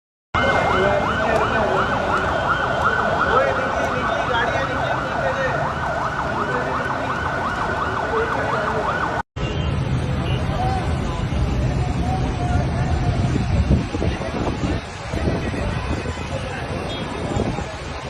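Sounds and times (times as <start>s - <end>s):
emergency siren yelping: 0.4s - 9.2s
street noise: 0.4s - 18.0s.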